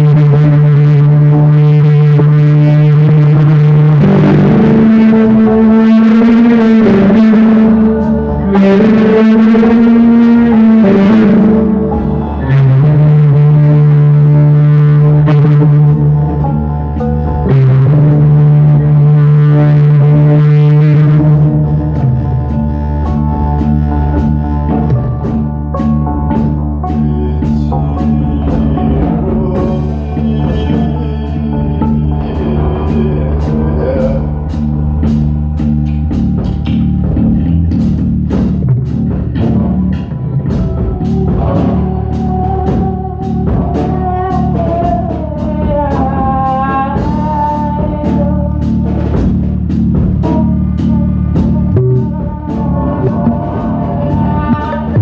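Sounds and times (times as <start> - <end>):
bass and guitar: 0.0 - 55.0
drum kit beat: 0.0 - 55.0.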